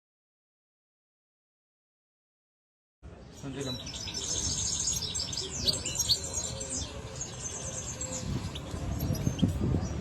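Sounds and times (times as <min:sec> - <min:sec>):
finch singing: 0:03.2 - 0:10.0.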